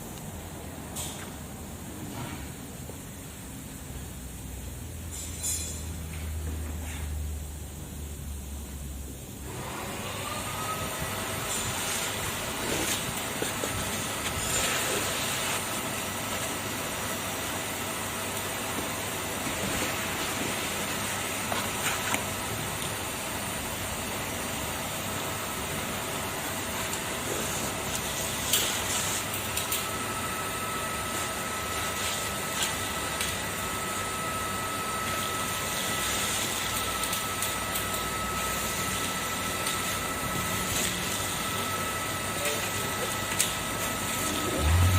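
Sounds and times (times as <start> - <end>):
vacuum cleaner running: 9.4 - 44.9.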